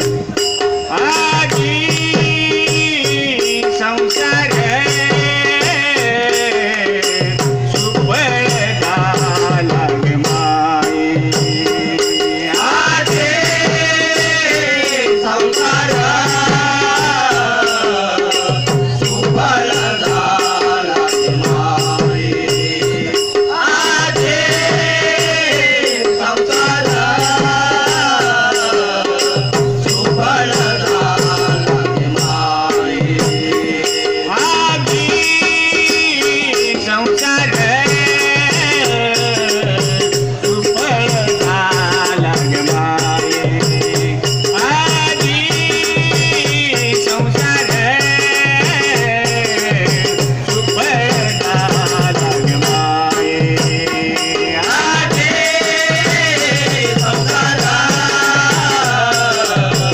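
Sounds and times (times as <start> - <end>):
hand drum beat: 0.0 - 59.9
jingling cymbal percussion: 0.0 - 59.9
person singing devotional song: 0.0 - 59.9.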